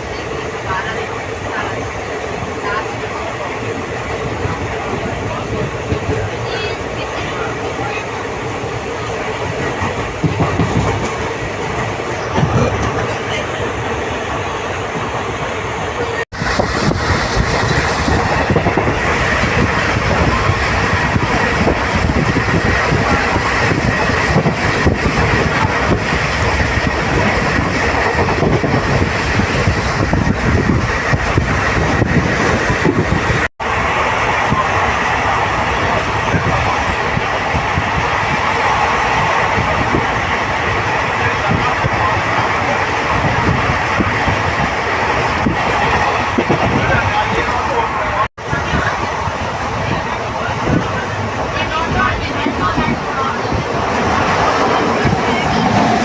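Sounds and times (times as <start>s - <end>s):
rail clatter: 0.0s - 56.0s
train rumbling and rattling: 0.0s - 56.0s
wheels knocking on rails: 9.4s - 13.6s.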